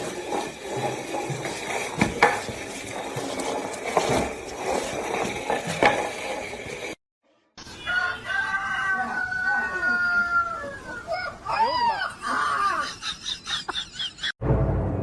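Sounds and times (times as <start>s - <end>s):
objects clicking and knocking: 0.0s - 7.0s.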